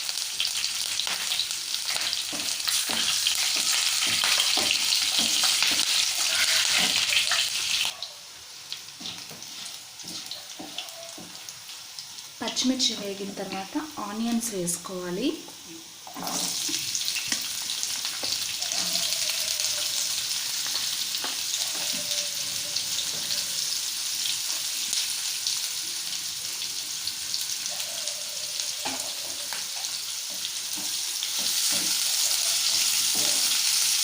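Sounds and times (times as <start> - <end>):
onions sizzling in hot oil: 0.0 - 34.0.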